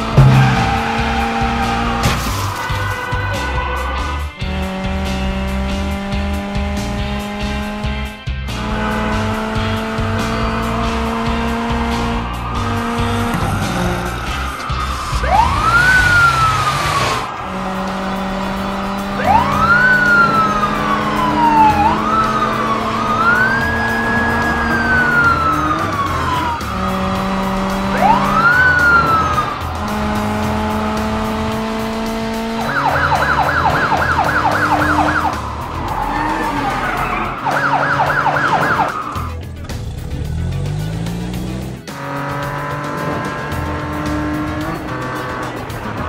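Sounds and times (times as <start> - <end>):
background music: 0.0 - 46.0
police siren wailing and yelping: 9.9 - 39.4.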